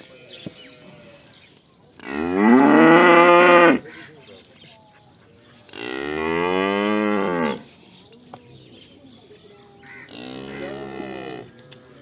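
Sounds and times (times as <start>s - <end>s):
cow mooing: 2.0s - 3.8s.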